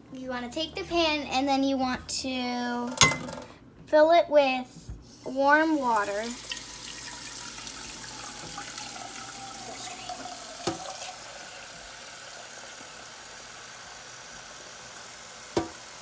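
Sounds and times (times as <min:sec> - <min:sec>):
tap running into saucepan: 0:06.4 - 0:11.2, 0:15.5 - 0:15.9.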